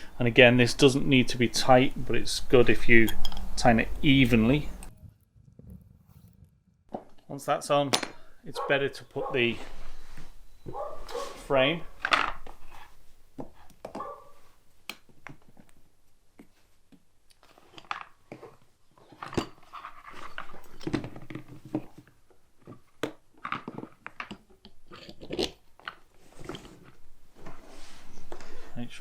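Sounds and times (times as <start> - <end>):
parts knocking and clicking: 7.9 - 8.3.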